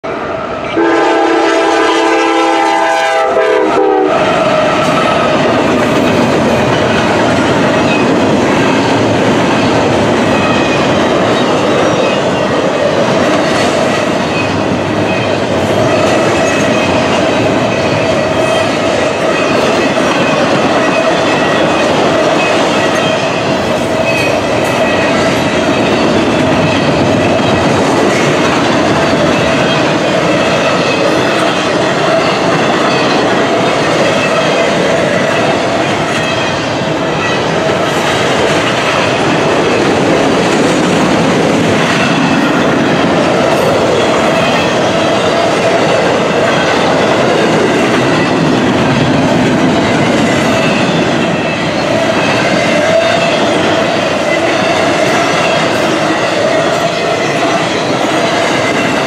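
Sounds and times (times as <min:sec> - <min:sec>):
locomotive air horn chord: 0:00.8 - 0:04.3
freight cars rumbling and clattering: 0:04.2 - 0:59.0.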